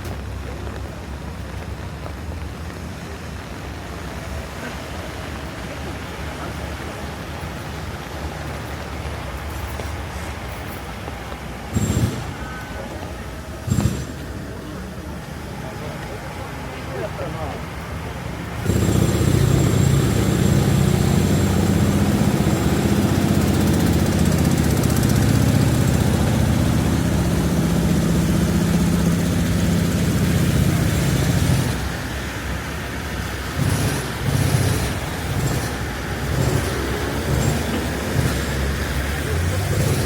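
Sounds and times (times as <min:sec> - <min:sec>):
hiss of wet street: 0:00.0 - 0:40.0
passing traffic: 0:00.0 - 0:40.0
vehicle engine rumbling: 0:00.0 - 0:40.0.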